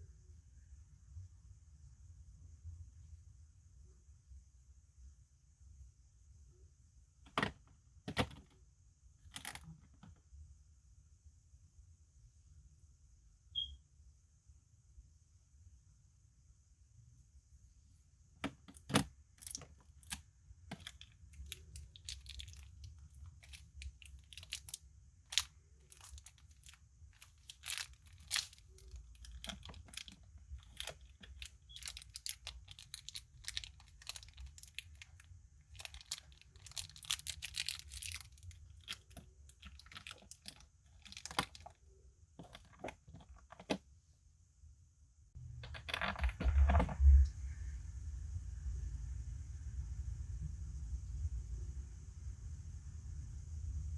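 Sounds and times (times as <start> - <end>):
packaging being torn open: 23.4 - 35.1, 35.8 - 41.7.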